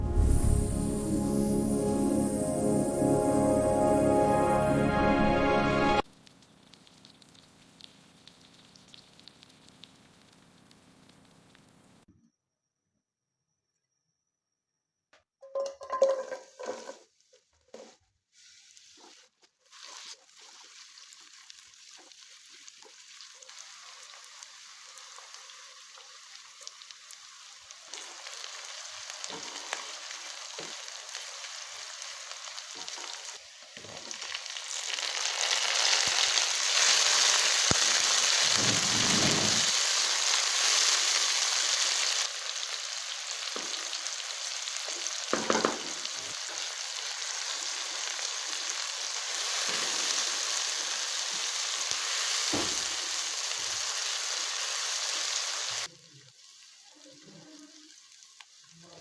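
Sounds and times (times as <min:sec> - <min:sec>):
food sizzling in hot oil: 0:06.0 - 0:12.0, 0:15.9 - 0:59.0.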